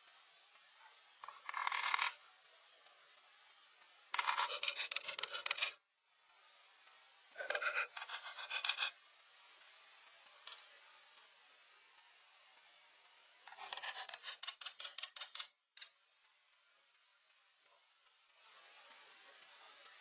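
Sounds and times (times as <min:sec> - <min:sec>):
tool rasping against wood: 0:04.2 - 0:05.8, 0:07.4 - 0:09.0, 0:13.5 - 0:15.4.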